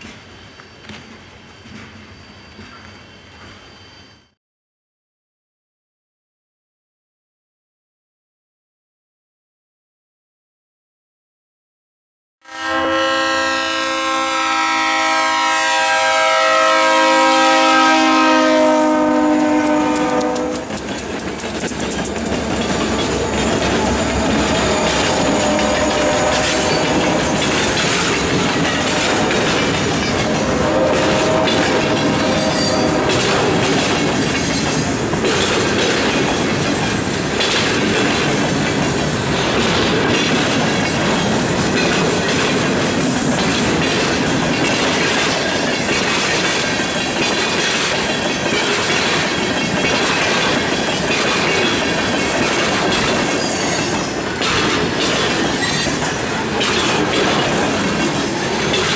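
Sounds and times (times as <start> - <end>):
train wheel squeals: 0.0 - 4.4, 19.1 - 58.9
freight train cars rumbling past: 12.5 - 58.9
wheels clacking over rail joints: 19.1 - 58.9.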